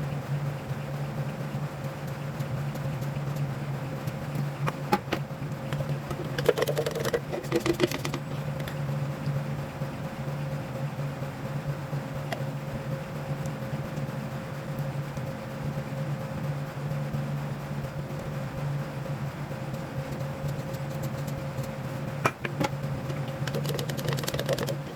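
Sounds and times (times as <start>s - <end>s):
low machine hum: 0.0s - 24.9s
clicking and clatter: 2.0s - 8.8s, 20.1s - 24.9s.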